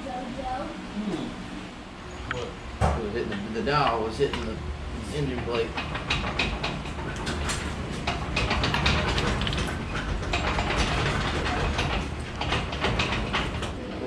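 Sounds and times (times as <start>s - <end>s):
metal clanks and knocks: 5.2s - 14.0s.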